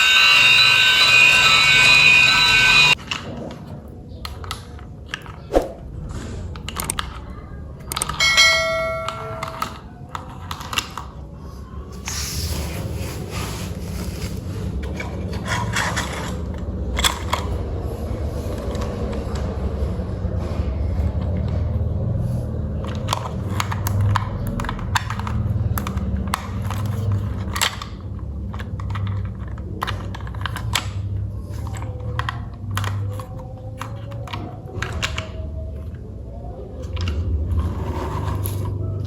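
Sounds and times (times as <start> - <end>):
toy train clicks and taps: 0.0 - 3.1, 6.6 - 11.2, 22.8 - 36.0.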